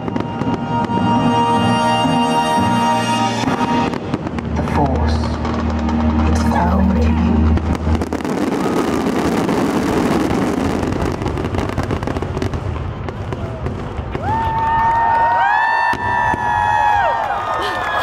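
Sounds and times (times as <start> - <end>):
show music: 0.0 - 10.0
fireworks crackling: 0.0 - 18.0.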